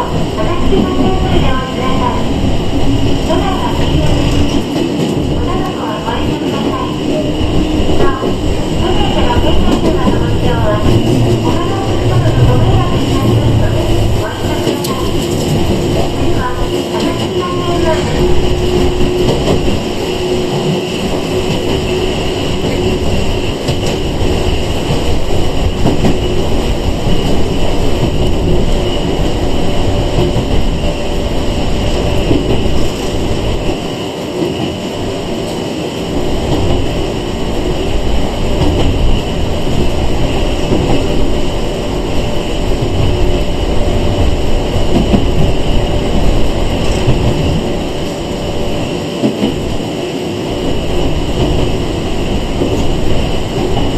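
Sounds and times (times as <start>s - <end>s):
train wheels rumbling on rail: 0.0s - 53.9s.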